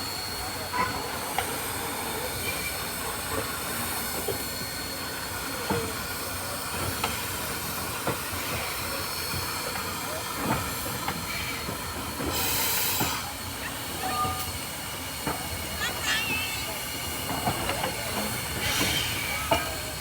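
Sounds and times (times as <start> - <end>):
train wheels knocking on rail joints: 5.5 - 20.0
loud burst of hiss: 11.2 - 13.9.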